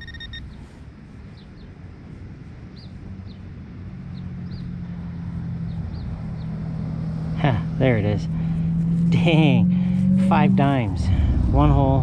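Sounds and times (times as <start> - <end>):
metal detector beeping: 0.0 - 0.6
bird chirping: 0.0 - 1.8, 2.7 - 3.5, 4.1 - 4.8, 5.6 - 8.4
engine hum: 0.0 - 12.0
low outdoor rumble: 0.0 - 12.0.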